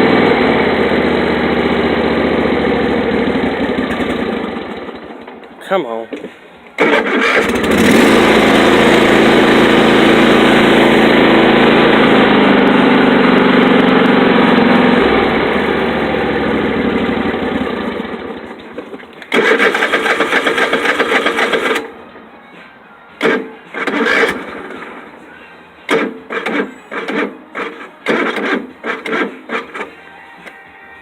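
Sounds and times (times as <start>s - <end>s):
engine cranking: 6.8s - 12.4s, 13.4s - 21.9s, 23.2s - 25.0s, 25.9s - 30.0s.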